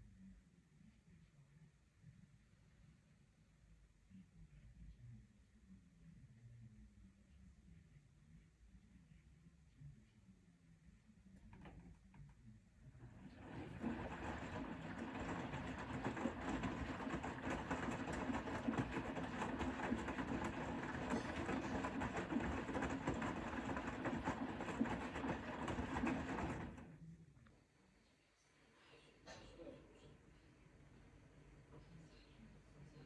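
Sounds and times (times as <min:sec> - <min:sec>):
washing machine motor hum: 0:11.4 - 0:27.1
laundry and water sloshing: 0:13.1 - 0:26.8.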